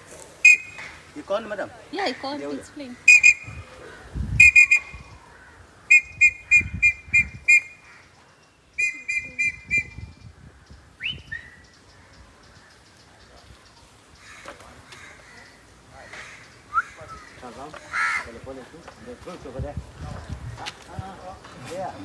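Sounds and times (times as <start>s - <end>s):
high-pitched whistled pips: 0.4s - 0.9s, 3.1s - 3.6s, 4.4s - 5.0s, 8.8s - 10.1s.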